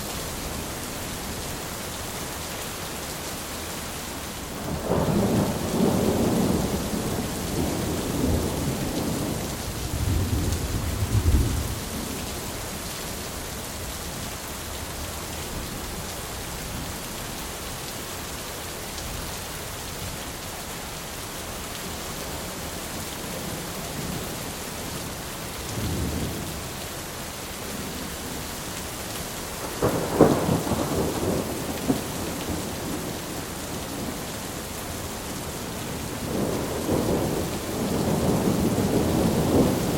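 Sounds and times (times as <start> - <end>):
steady rain: 0.0 - 39.9
thunder rumbling: 4.7 - 12.5, 29.6 - 39.9
sharp thunderclap: 29.8 - 33.2.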